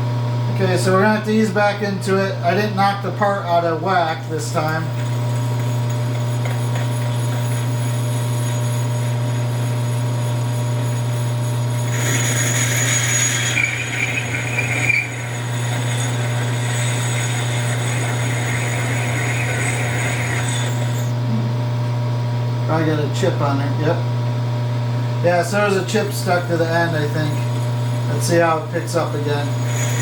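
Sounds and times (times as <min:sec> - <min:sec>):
lathe humming: 0:02.5 - 0:21.7, 0:25.0 - 0:30.0
tool scraping spinning metal: 0:03.3 - 0:21.2, 0:25.3 - 0:30.0.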